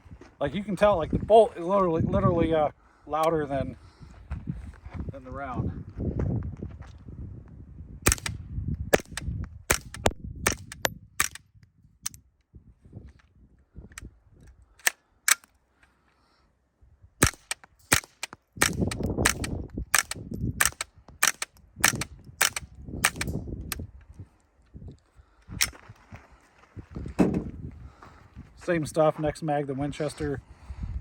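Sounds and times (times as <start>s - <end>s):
wind rumble on microphone: 0.0s - 14.7s, 18.5s - 31.0s
rifle bolt cycling: 8.1s - 8.4s, 9.0s - 11.4s, 17.2s - 23.8s
suppressed rifle shots: 8.1s - 11.4s, 17.2s - 23.4s.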